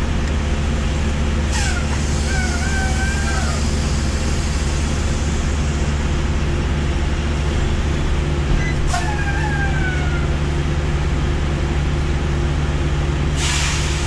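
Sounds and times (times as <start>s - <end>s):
diesel truck engine drone: 0.0s - 14.0s.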